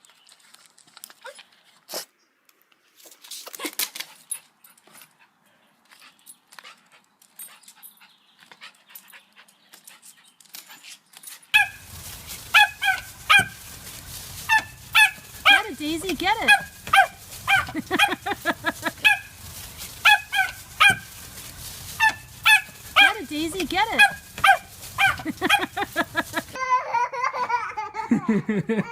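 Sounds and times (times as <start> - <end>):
dog yipping: 11.6 - 26.5.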